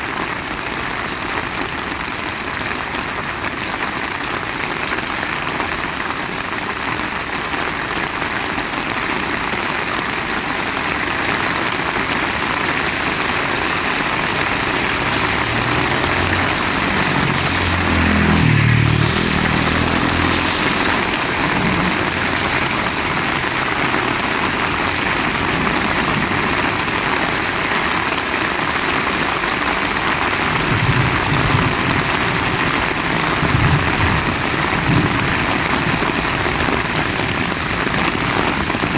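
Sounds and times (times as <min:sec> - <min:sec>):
heavy rain: 0:00.0 - 0:38.9
vehicle engine passing: 0:11.3 - 0:38.9.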